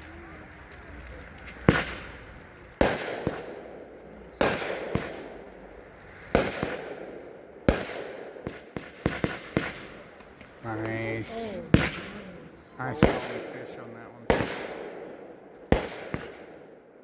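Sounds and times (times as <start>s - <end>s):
small firework pops: 0.0s - 16.8s
firework reports with hiss: 8.6s - 13.4s.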